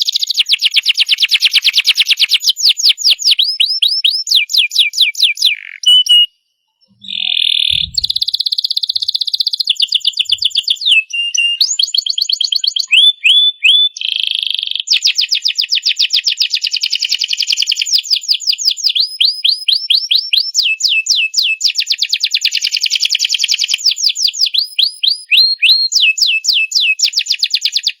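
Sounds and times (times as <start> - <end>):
canary singing trills: 0.0 - 15.0.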